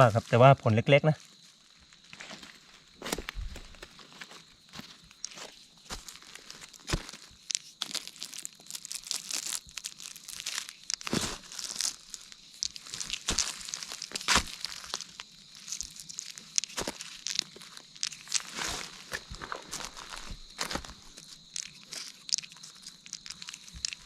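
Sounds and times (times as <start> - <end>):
rustling in dry leaf litter: 4.9 - 24.0.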